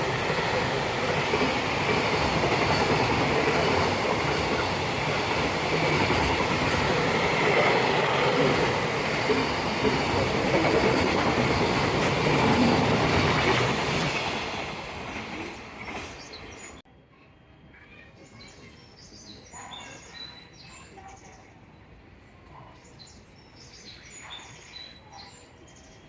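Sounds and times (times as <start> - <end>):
electric train passing: 0.0 - 16.8.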